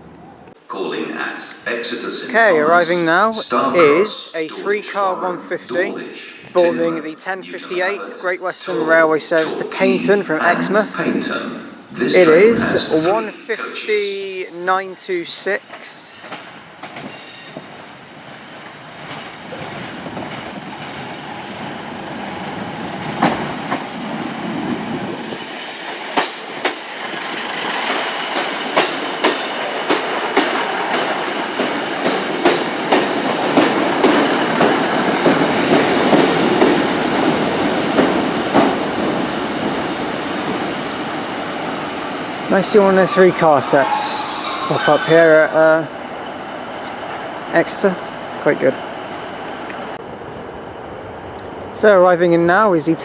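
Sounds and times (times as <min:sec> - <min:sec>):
wheels clacking over rail joints: 0:25.9 - 0:41.2.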